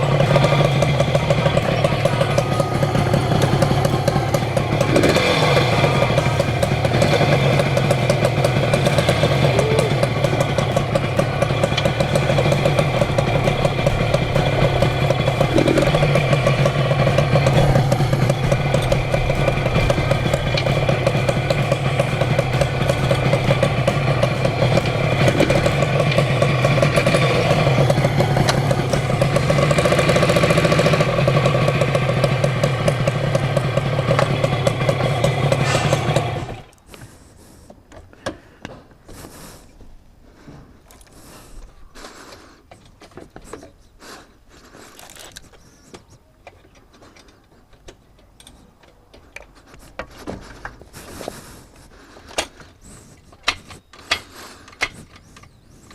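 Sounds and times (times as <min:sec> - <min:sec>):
two-stroke engine running: 0:00.0 - 0:37.5.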